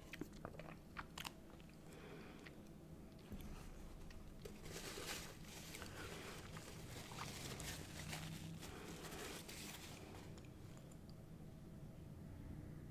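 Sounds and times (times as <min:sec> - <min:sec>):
rustling food wrappers: 0:03.6 - 0:10.5.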